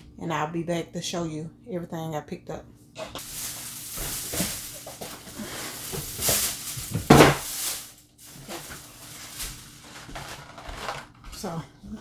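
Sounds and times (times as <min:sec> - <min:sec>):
items being handled: 0:03.0 - 0:11.7
grocery bags rustling: 0:03.0 - 0:12.0.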